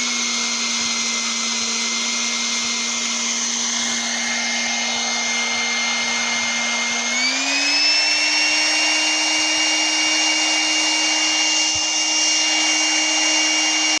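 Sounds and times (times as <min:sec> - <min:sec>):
electric fan motor whine: 0:00.0 - 0:14.0
rush of air: 0:03.7 - 0:07.1.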